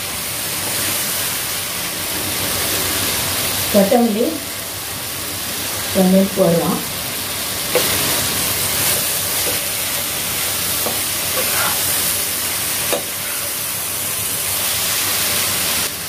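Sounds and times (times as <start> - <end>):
food sizzling in a pan: 0.0 - 16.0
spatula scraping and tapping pan: 7.7 - 8.1, 8.8 - 10.1, 10.8 - 12.0, 12.9 - 13.6.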